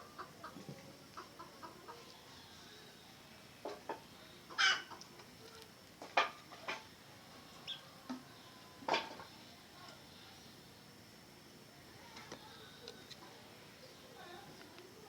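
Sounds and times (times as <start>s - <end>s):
junglefowl clucking: 0.0s - 0.6s, 1.2s - 2.1s, 3.6s - 5.1s.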